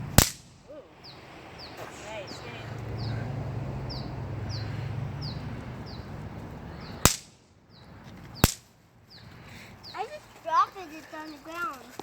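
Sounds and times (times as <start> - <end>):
firework cracks: 0.0 - 0.8, 7.0 - 7.5, 8.4 - 8.7.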